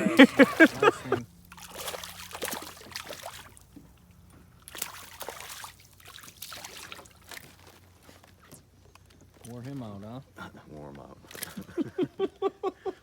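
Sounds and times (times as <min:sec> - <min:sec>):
river water sloshing and splashing: 0:00.0 - 0:08.3.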